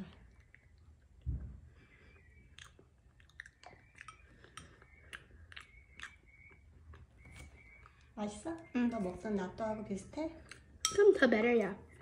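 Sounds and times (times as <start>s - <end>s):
child chewing sticky food: 0.0s - 8.2s, 10.3s - 10.9s.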